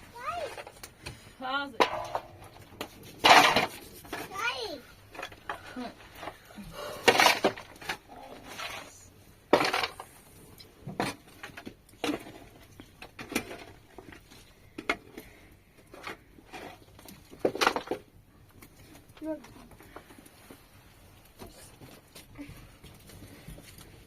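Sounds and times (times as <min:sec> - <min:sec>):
hard objects knocking and clattering: 0:00.2 - 0:04.4, 0:05.0 - 0:06.4, 0:07.0 - 0:08.1, 0:09.5 - 0:10.1, 0:10.8 - 0:20.3.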